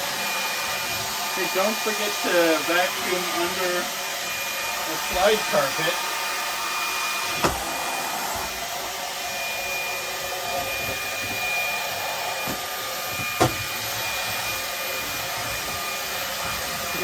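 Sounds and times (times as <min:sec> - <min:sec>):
hand vacuum whining: 0:00.0 - 0:17.0
sharp knocks: 0:13.2 - 0:13.7.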